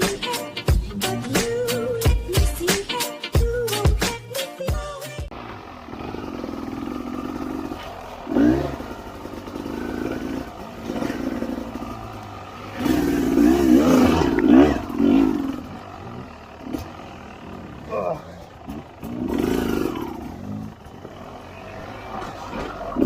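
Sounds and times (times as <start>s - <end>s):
dirt bike engine revving: 5.3s - 23.0s.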